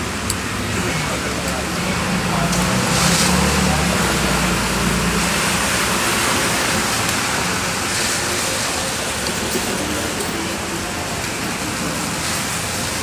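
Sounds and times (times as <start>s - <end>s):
rain on wet pavement: 0.0s - 13.0s
traffic on wet road: 0.0s - 13.0s.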